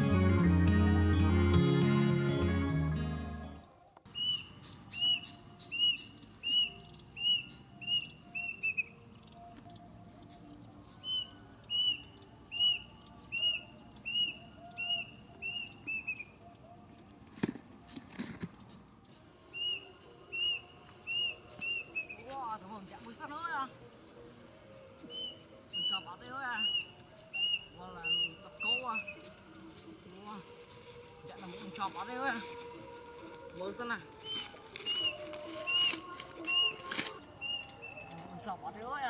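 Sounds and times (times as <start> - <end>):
bird whistling calls: 4.1 - 9.0, 11.0 - 16.3, 25.0 - 33.1, 34.2 - 38.1.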